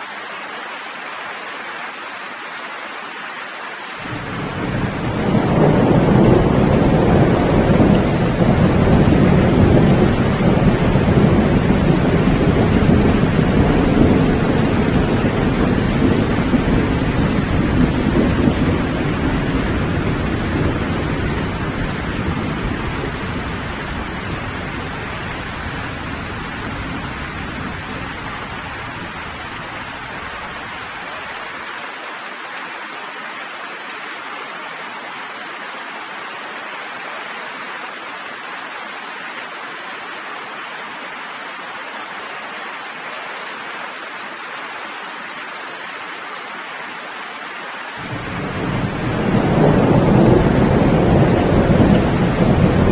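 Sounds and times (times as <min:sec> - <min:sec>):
steady rain: 0:00.0 - 0:52.9
thunder rumbling: 0:04.1 - 0:30.4, 0:48.0 - 0:52.9.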